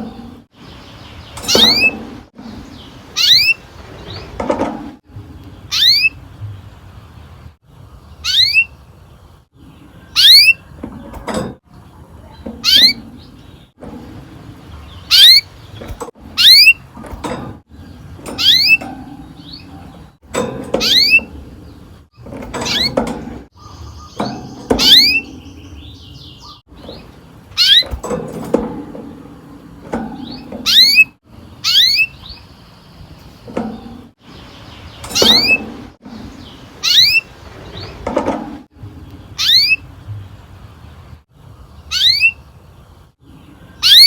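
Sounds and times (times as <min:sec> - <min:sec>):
canary call notes: 0:08.2 - 0:08.8.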